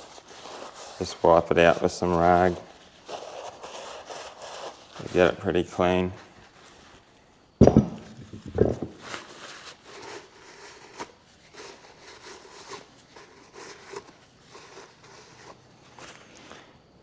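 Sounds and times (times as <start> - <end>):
rag wiping inside a wheel hub: 0.0 - 7.1, 8.4 - 16.4
heavy thumps: 7.6 - 9.0.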